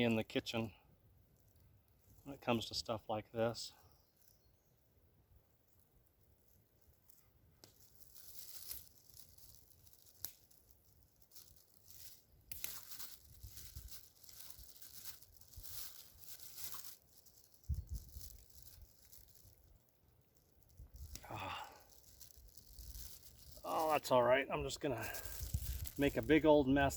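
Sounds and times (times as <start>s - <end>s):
dough tearing and crinkling: 6.5s - 26.9s.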